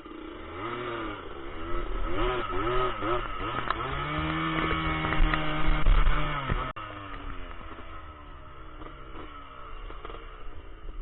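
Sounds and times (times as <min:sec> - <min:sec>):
two-stroke engine revving: 0:00.0 - 0:11.0.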